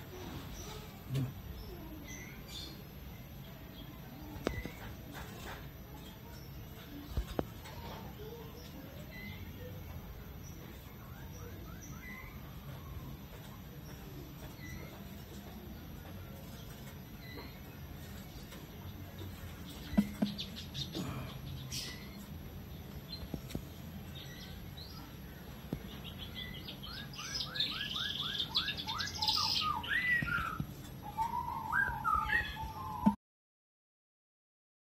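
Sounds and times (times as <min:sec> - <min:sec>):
bird chirping: 0:06.2 - 0:33.2.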